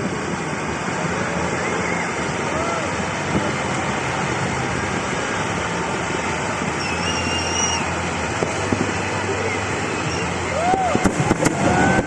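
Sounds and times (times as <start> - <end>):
thin whistle tone: 6.8 - 8.0, 9.4 - 10.3.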